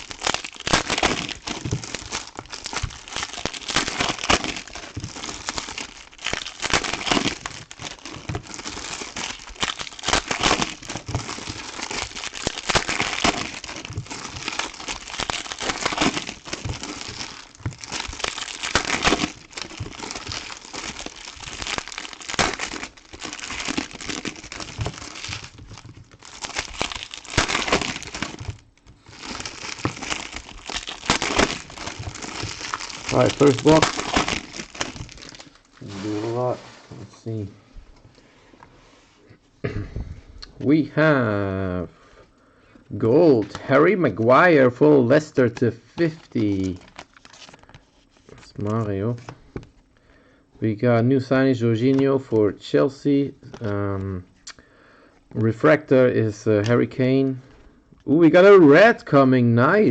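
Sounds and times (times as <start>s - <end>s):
plastic wrappers crinkling and tearing: 0.0s - 36.5s, 43.2s - 49.9s.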